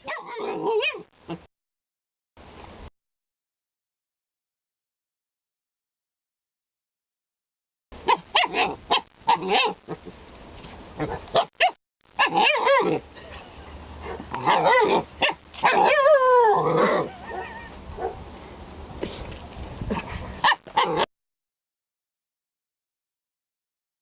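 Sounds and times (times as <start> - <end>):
dog yipping and woo-like barking: 0.0 - 1.1, 8.0 - 9.8, 11.0 - 13.0, 14.0 - 18.2, 20.4 - 21.1
dog howling call sliding down: 14.5 - 17.8.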